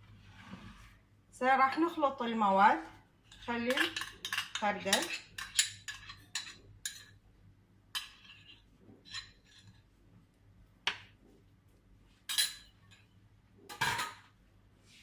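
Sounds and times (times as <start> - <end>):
spoon clinking against dishes: 3.4 - 7.2.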